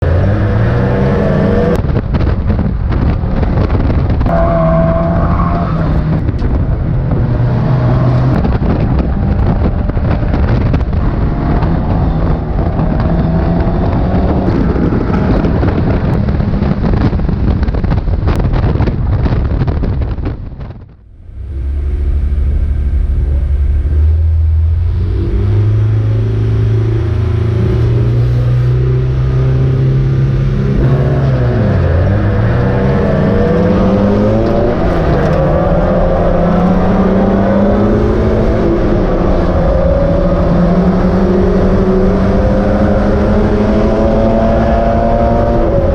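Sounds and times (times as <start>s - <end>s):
other race cars: 0.0s - 45.9s
race car engine running hard: 21.2s - 45.9s.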